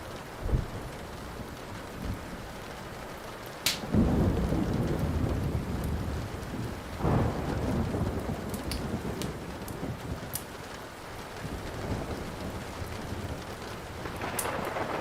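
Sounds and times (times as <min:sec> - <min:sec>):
steady rain: 0:00.0 - 0:15.0
wood fire popping: 0:03.6 - 0:03.8
thunder rolling: 0:03.9 - 0:10.4, 0:11.4 - 0:15.0.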